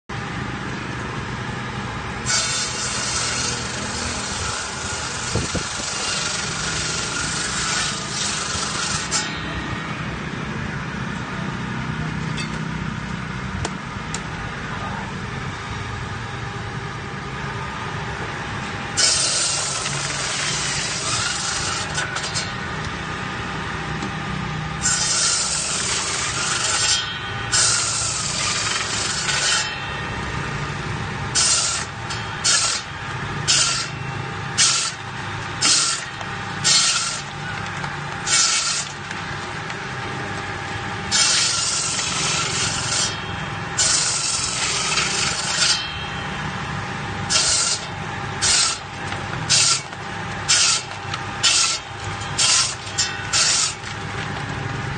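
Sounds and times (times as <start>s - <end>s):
saw motor humming: 0.1s - 14.6s, 15.3s - 54.9s
saw blade cutting stone: 2.2s - 9.7s, 18.9s - 22.9s, 24.7s - 30.6s, 31.2s - 46.5s, 47.2s - 54.1s.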